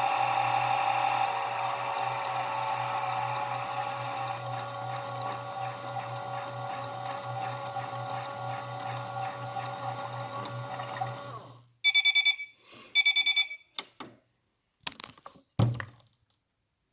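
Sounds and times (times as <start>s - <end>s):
washing machine humming: 0.0s - 11.6s.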